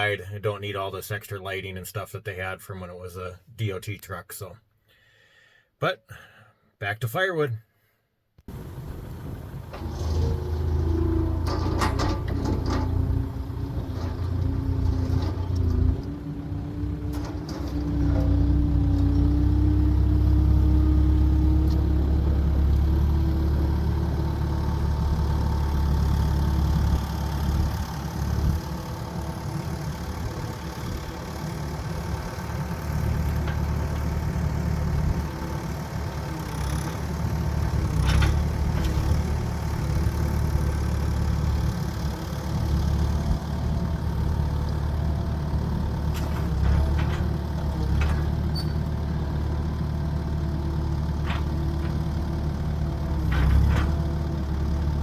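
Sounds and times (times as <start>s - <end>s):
large engine rumbling: 8.5s - 55.0s
sharp clicks and knocks: 11.3s - 16.1s.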